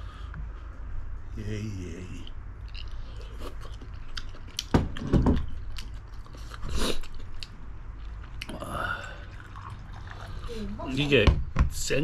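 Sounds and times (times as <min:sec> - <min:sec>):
person chewing: 0:02.6 - 0:10.5.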